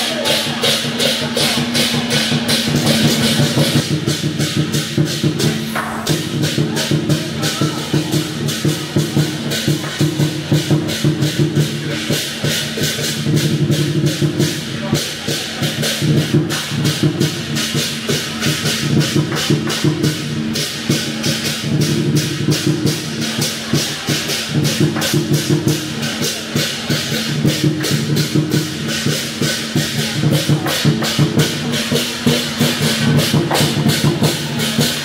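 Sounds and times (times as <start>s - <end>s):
crashing cymbals: 0.0s - 35.0s
drums beating fast rhythm: 0.0s - 35.0s.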